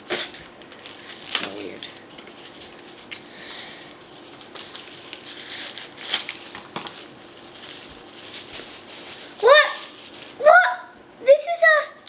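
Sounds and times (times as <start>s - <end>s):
packaging crinkling: 0.7s - 10.4s
sharp crackles: 4.2s - 10.4s.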